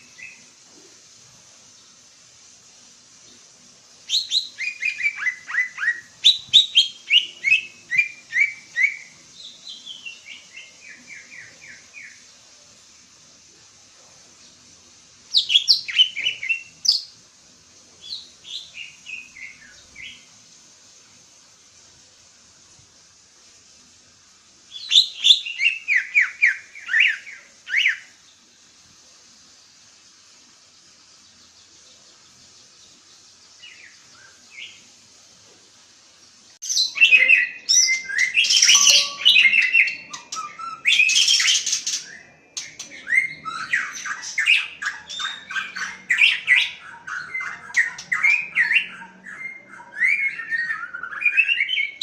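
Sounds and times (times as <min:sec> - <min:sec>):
steady hiss: 0:00.0 - 0:52.0
songbird whistled notes: 0:04.1 - 0:12.2, 0:24.7 - 0:28.1, 0:36.6 - 0:52.0.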